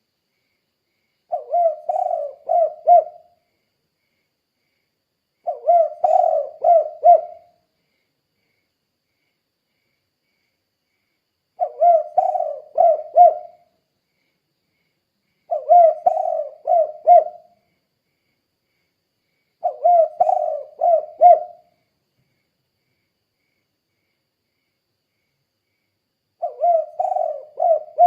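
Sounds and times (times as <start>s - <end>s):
dove cooing: 1.3s - 3.4s, 5.4s - 7.6s, 11.6s - 13.7s, 15.5s - 17.6s, 19.6s - 21.7s, 26.4s - 28.0s.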